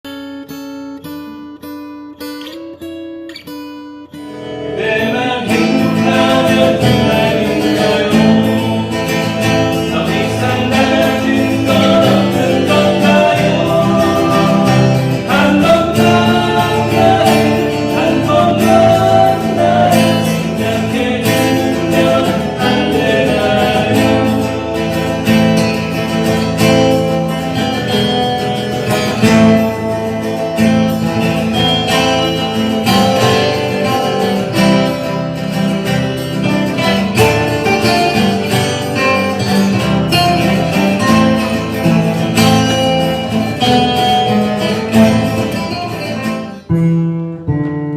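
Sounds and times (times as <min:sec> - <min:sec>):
acoustic guitar playing: 0:00.0 - 0:47.9
person singing: 0:04.6 - 0:26.2.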